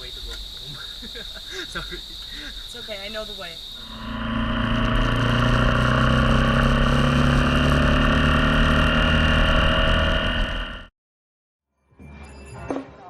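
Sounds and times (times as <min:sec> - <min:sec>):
road and wind noise: 0:02.7 - 0:10.9
motorcycle engine running: 0:03.8 - 0:10.9.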